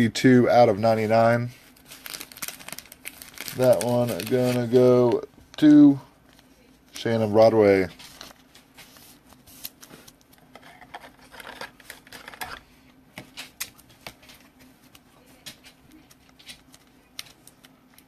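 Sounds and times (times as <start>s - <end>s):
low steady hum: 0.0s - 18.0s
trading cards clicking and rustling: 9.6s - 12.6s, 13.2s - 18.0s.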